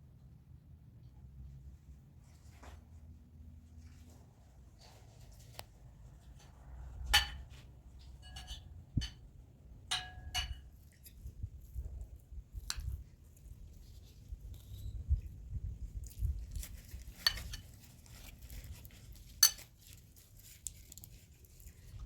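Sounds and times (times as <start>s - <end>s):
dishes and cutlery clinking: 7.2s - 9.2s, 9.9s - 10.8s, 17.2s - 17.8s, 19.4s - 19.7s.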